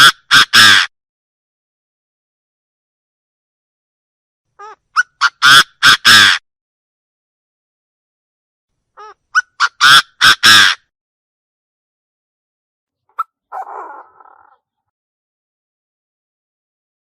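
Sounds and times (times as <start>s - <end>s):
soft rasping bird call: 4.6s - 6.4s, 9.0s - 10.9s, 13.1s - 14.8s.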